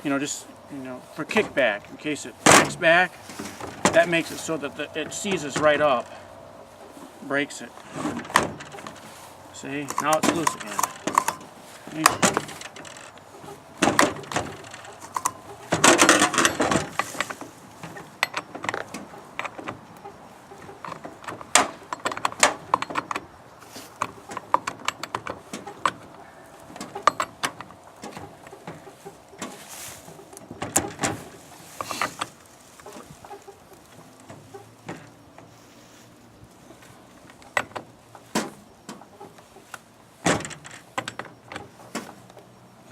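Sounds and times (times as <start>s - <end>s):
chainsaw handling clicks and rattles: 7.8s - 19.9s, 20.6s - 28.6s.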